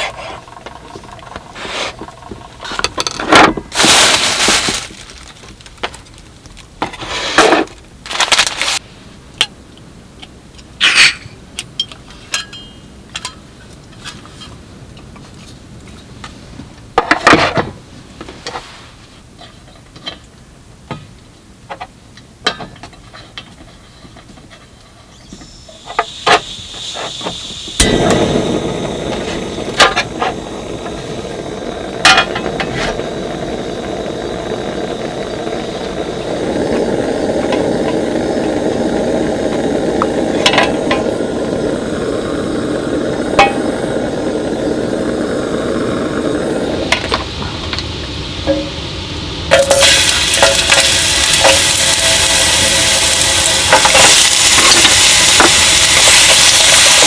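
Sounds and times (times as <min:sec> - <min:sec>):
steady rushing noise: 0:27.2 - 0:57.0.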